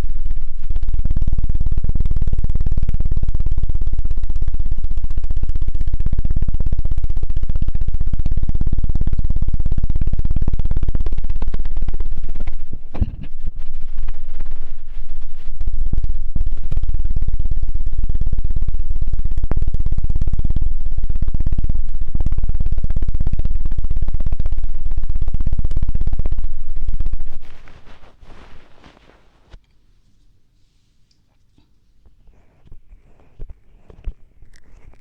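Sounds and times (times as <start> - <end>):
rapid thumps on microphone: 10.9 - 17.2, 27.2 - 29.6
soft rustles: 12.5 - 15.6, 27.3 - 35.0.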